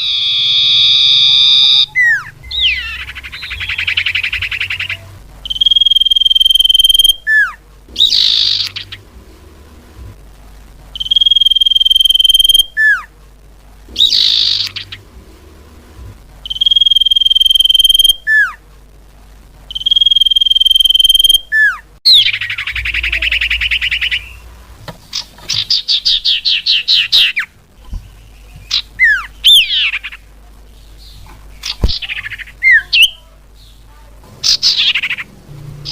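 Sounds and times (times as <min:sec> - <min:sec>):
bird whistling calls: 0:00.0 - 0:09.0, 0:11.0 - 0:13.1, 0:13.9 - 0:15.0, 0:16.4 - 0:18.6, 0:19.7 - 0:24.5, 0:25.5 - 0:30.2.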